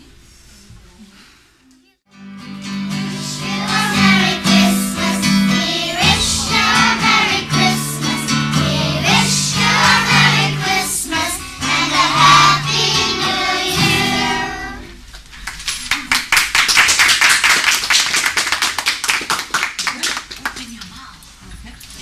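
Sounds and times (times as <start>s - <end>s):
children singing together: 2.7s - 15.0s.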